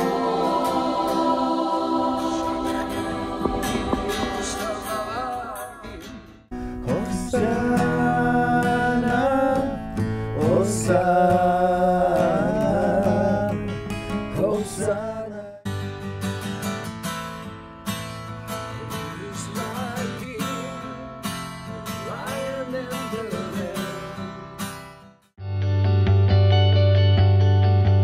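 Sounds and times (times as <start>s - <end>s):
men singing: 0.0s - 6.2s, 6.8s - 15.6s
acoustic guitar strumming: 0.0s - 28.0s.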